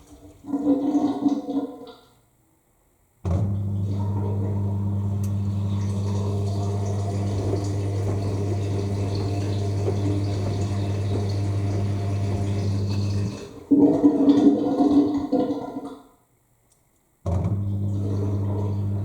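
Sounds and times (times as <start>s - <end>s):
drain pump humming: 3.3s - 15.6s, 17.3s - 19.0s.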